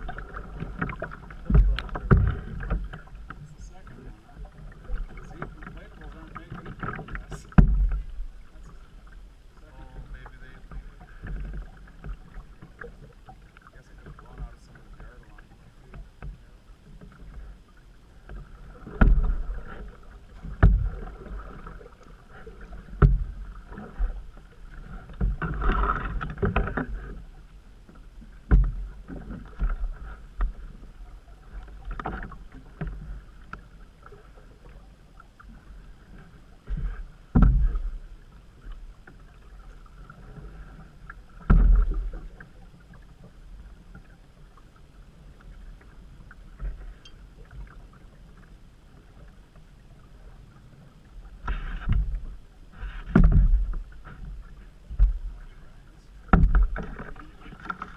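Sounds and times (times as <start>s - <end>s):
paddle thumps on hull: 0.0s - 8.7s, 18.3s - 27.2s, 28.4s - 30.8s, 36.6s - 39.2s, 41.4s - 42.4s, 51.4s - 55.5s, 56.1s - 57.9s
moving water wash: 0.0s - 57.9s
water splashing: 0.0s - 57.9s.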